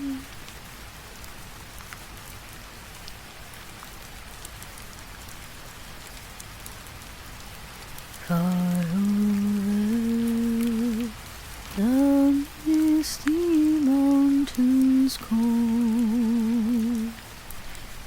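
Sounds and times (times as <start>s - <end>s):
woman singing unaccompanied: 0.0s - 0.3s, 8.2s - 17.3s
steady rain falling: 0.0s - 18.0s.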